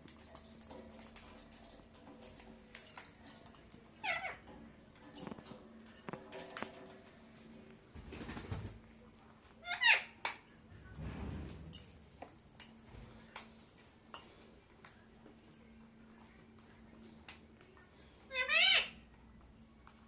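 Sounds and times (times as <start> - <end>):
parakeet call: 18.3 - 19.0.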